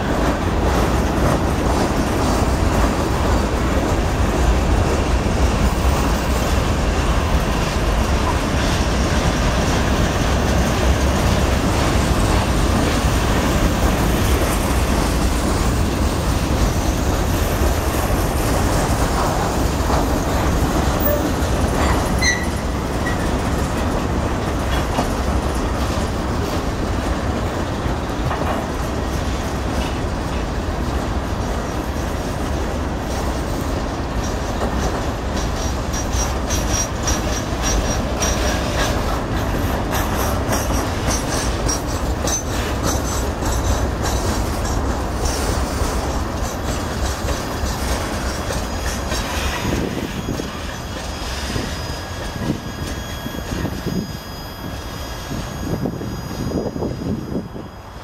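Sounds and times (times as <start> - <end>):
wheels clicking over rail joints: 0.0 - 54.0
train wheels rumbling on rails: 0.0 - 58.0
high wheel squeals: 19.3 - 23.4, 34.2 - 58.0.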